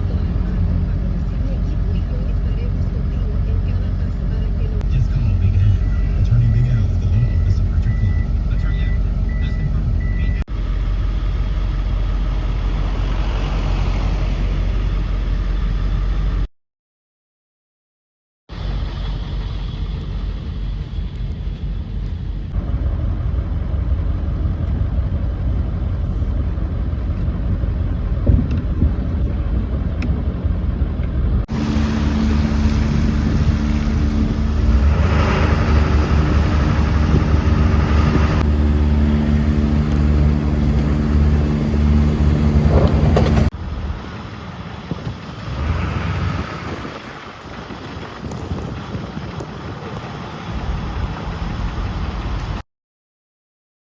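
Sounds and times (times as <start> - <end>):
vehicle engine running: 0.0 - 16.5, 18.5 - 52.6
wind on microphone: 24.3 - 52.6.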